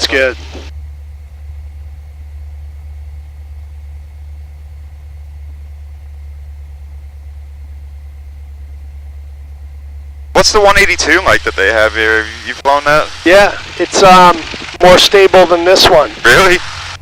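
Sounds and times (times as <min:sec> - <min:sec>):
plane piston engine idling: 0:00.0 - 0:17.0.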